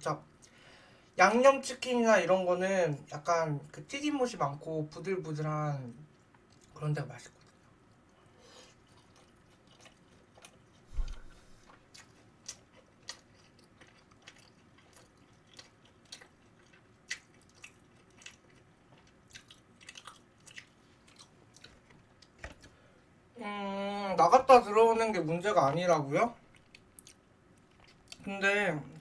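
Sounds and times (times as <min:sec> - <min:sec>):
chewing crunchy chicken: 0:06.0 - 0:22.8, 0:26.4 - 0:28.3
dull thump: 0:10.9 - 0:11.4.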